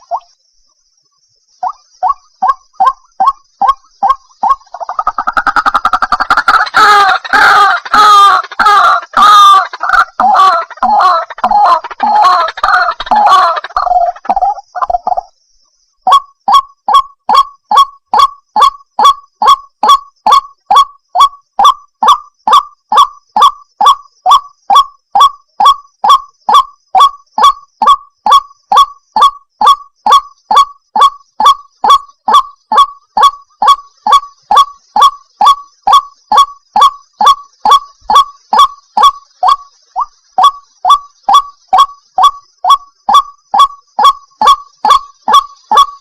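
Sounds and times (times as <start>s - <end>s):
waterhen calling wak notes: 1.6s - 15.3s, 16.1s - 46.0s.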